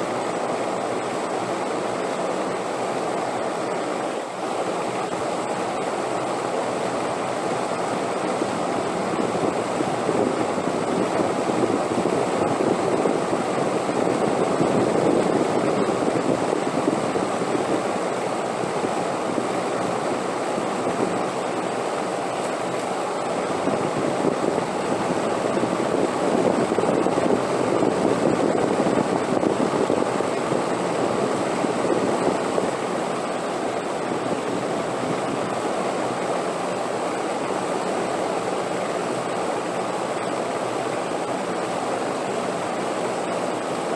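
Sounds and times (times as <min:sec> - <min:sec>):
wind blowing in gusts: 0:08.0 - 0:21.7, 0:22.8 - 0:36.4.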